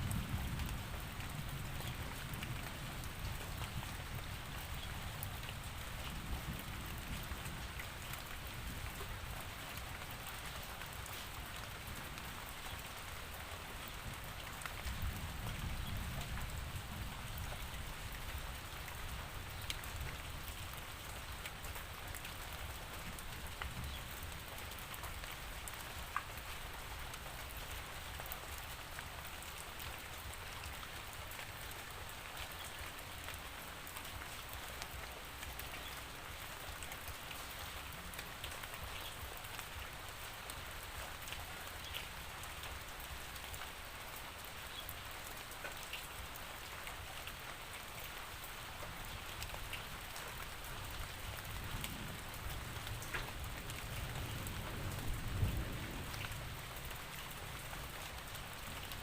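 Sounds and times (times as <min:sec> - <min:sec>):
raindrops ticking on a surface: 0:00.0 - 0:59.0
steady rainfall: 0:00.0 - 0:59.0.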